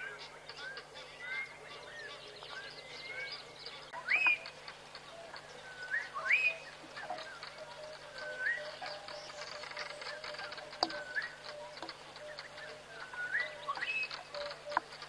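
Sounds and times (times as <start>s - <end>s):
birds chirping: 0.0s - 15.0s
rising bird whistles: 10.9s - 14.8s.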